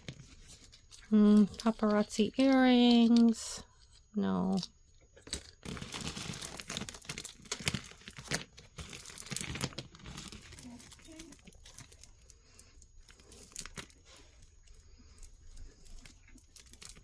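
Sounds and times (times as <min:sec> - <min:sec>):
packaging crinkling and rustling: 0:00.0 - 0:03.3, 0:04.5 - 0:17.0.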